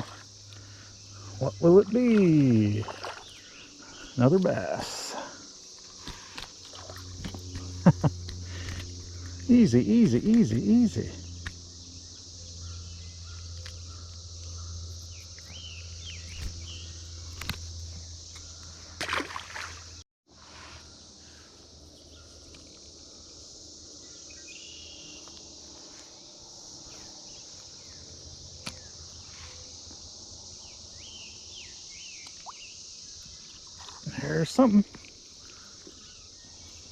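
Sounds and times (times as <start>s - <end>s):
birds chirping: 0.0s - 6.0s, 6.6s - 18.9s
cicadas droning: 0.0s - 36.9s.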